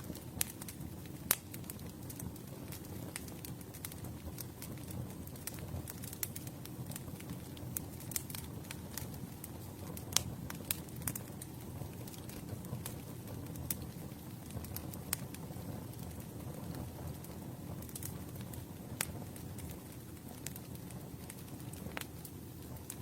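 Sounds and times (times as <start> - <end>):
burning wood crackling and popping: 0.0 - 23.0
rush of flame: 0.0 - 23.0.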